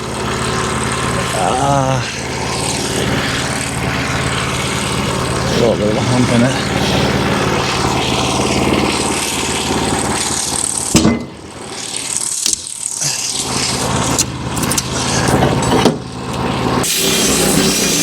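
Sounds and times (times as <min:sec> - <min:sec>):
sawmill engine running: 0:00.0 - 0:18.0.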